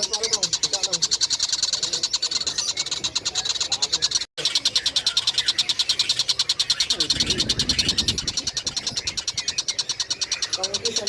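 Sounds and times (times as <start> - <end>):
kingfisher rattling call: 0.0 - 11.0.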